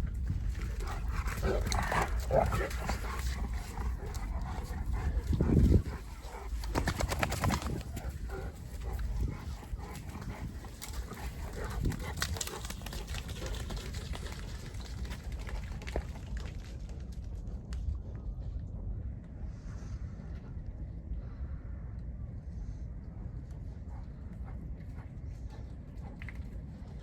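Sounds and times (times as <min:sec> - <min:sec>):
wind rumbling on microphone: 0:00.0 - 0:27.0
dog sounds: 0:00.2 - 0:16.2.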